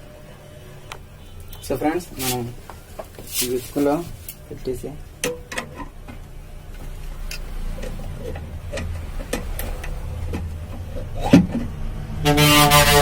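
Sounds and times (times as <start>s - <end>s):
low steady hum: 0.0s - 13.0s
clicks and knocks of handling: 6.8s - 11.8s.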